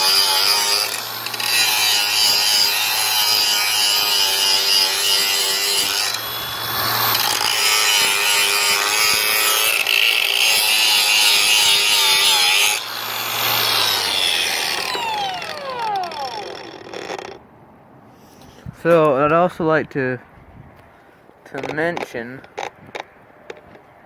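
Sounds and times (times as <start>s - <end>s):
grinder disc spinning down: 0.0s - 9.6s, 10.5s - 17.4s
angle grinder grinding pipe: 0.0s - 17.4s.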